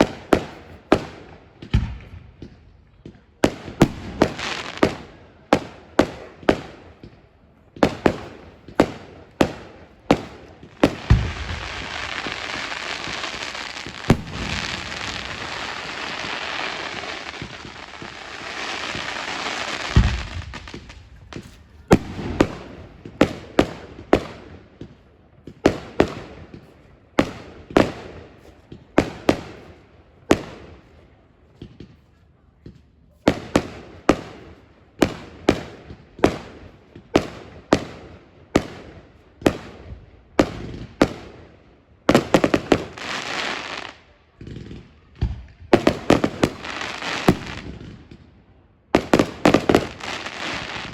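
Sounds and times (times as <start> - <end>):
deep firework booms: 0.0 - 28.1
firework bangs with echo: 0.0 - 30.9, 33.3 - 41.5, 42.1 - 50.9
firework crackling hiss: 10.2 - 23.2, 45.8 - 47.6.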